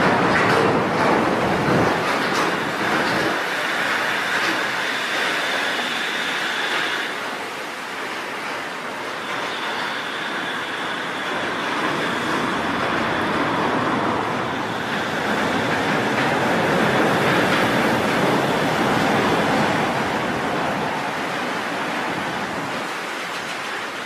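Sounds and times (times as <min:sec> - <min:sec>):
train passing at speed: 0:00.0 - 0:24.0.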